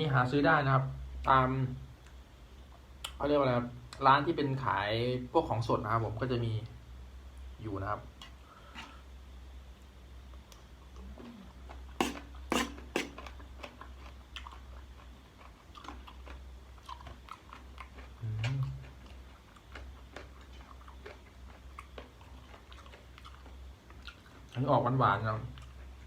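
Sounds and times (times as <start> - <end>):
low steady hum: 0.0 - 26.0
person chewing and crunching: 10.4 - 24.7, 25.4 - 26.0.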